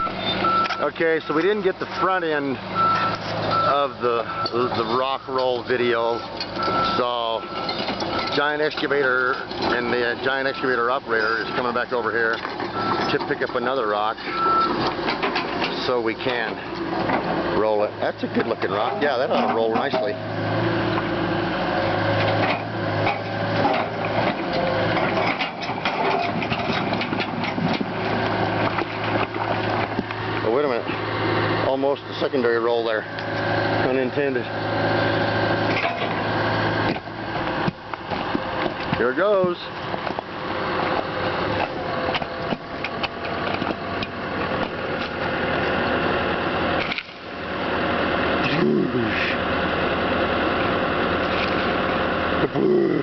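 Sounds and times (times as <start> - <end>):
excavator diesel engine running: 0.0 - 53.0
clattering knocks and clanks: 5.4 - 10.0, 12.2 - 17.4, 22.1 - 31.0, 35.7 - 36.2.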